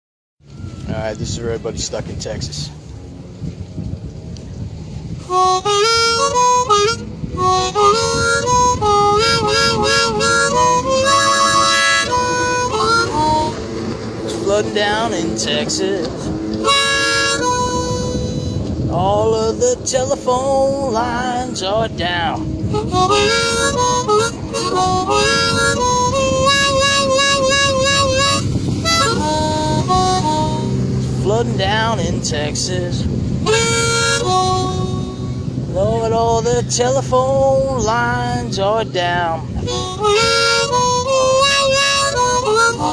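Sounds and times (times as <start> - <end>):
blues harmonica playing: 5.2 - 19.0, 22.5 - 31.2, 33.4 - 36.0, 39.2 - 42.9
accompanying music: 5.3 - 31.0, 33.4 - 35.7, 39.6 - 42.9.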